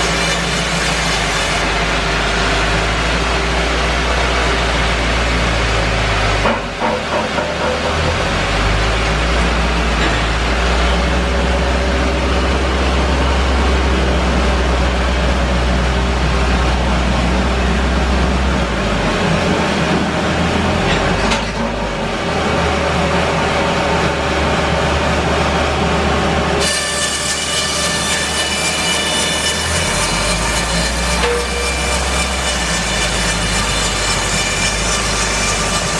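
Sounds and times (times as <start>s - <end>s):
low engine drone: 0.0s - 26.6s
bandsaw mill running: 0.0s - 35.9s.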